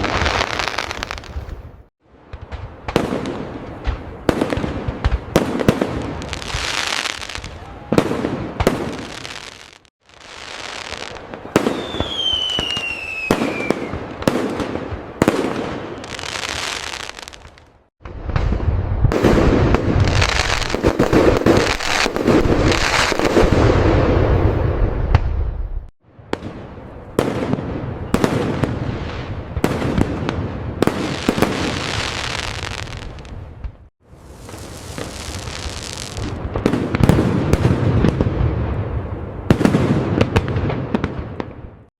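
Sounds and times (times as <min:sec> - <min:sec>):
fireworks bangs and crackling: 0:00.0 - 0:41.9
falling firework whistle: 0:10.5 - 0:14.1.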